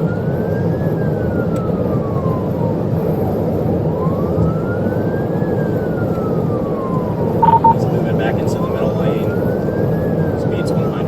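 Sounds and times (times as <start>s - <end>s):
police siren wailing: 5.8s - 8.0s.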